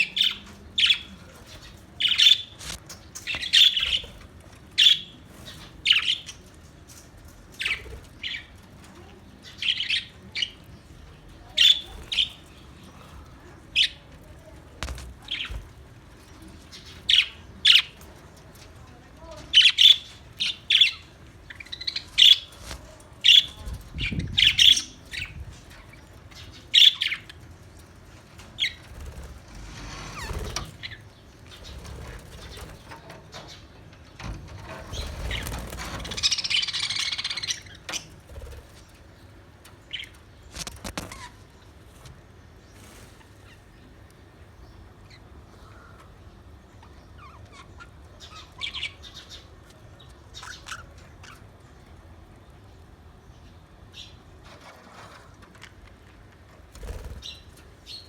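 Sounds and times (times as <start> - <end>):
parrots chirping: 3.3 - 4.0, 35.3 - 38.3
wings flapping: 14.6 - 15.9, 28.5 - 33.0, 34.6 - 39.0, 40.5 - 43.6, 56.6 - 57.8.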